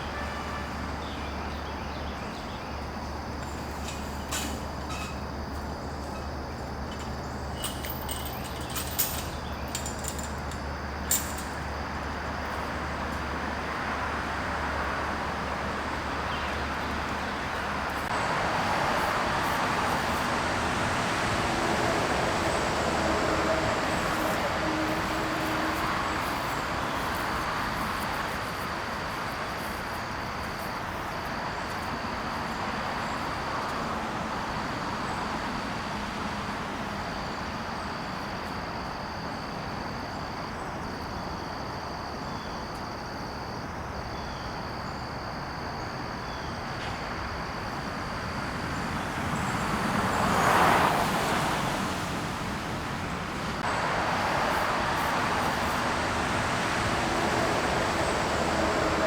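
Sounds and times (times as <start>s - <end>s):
road traffic hum: 0.0s - 59.0s
vehicle passing: 12.7s - 29.7s, 48.6s - 59.0s.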